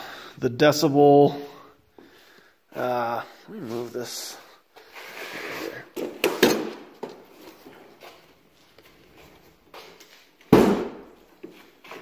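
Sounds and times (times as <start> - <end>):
faint rustling and shuffling: 7.1 - 10.5.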